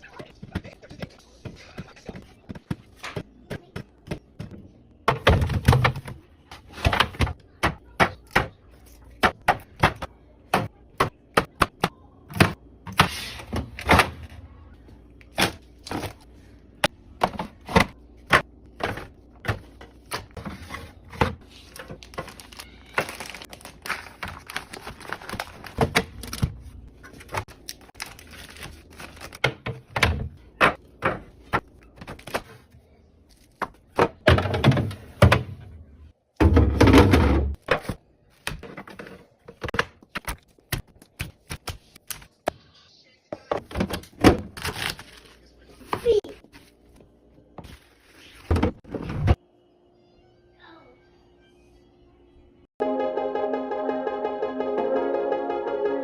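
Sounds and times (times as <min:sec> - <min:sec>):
containers clicking and thunking on shelves: 0:01.8 - 0:08.6, 0:17.2 - 0:22.4, 0:29.2 - 0:32.6, 0:33.6 - 0:35.8, 0:36.4 - 0:41.7.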